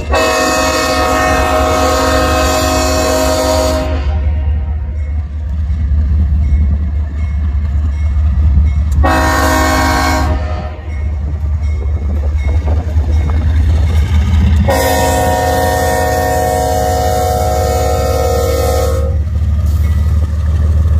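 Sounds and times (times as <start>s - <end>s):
locomotive air horn: 0.0s - 4.8s, 9.0s - 10.9s, 14.6s - 19.2s
train rumble: 0.0s - 20.9s.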